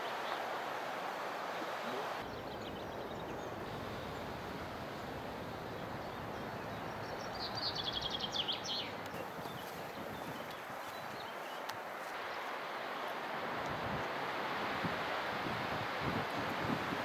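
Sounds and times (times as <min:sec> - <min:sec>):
outdoor background noise: 0:00.0 - 0:17.0
songbird trilling: 0:06.0 - 0:11.6.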